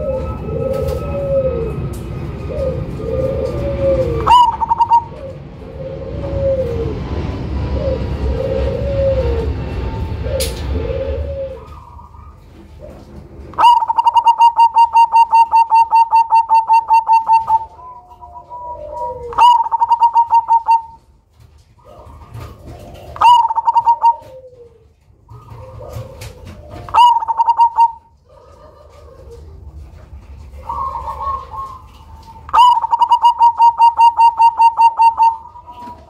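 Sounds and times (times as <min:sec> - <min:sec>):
dove cooing: 0:00.0 - 0:36.0.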